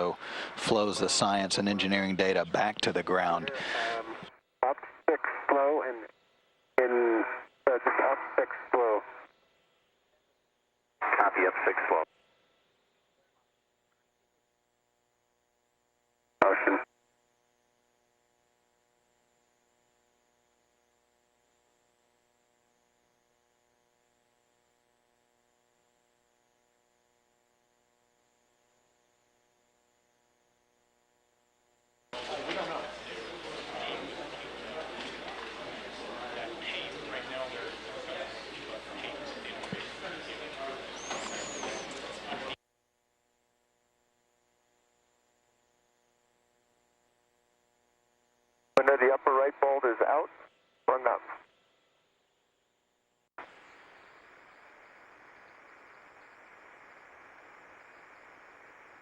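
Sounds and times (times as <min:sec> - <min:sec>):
radio channel hiss: 0:00.0 - 0:10.4, 0:11.0 - 0:13.4, 0:16.4 - 0:16.9, 0:32.2 - 0:42.6, 0:48.8 - 0:51.5, 0:53.4 - 0:59.0
faint high whine: 0:00.0 - 0:14.5, 0:16.4 - 0:18.1, 0:32.1 - 0:42.6, 0:53.4 - 0:59.0
faint steady hum: 0:00.0 - 0:59.0.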